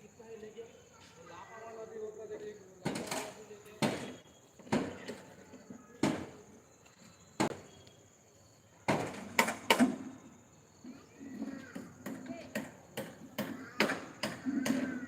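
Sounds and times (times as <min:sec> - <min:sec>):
knocks and bangs on formwork: 0:02.8 - 0:05.2, 0:06.0 - 0:06.4, 0:11.4 - 0:15.0.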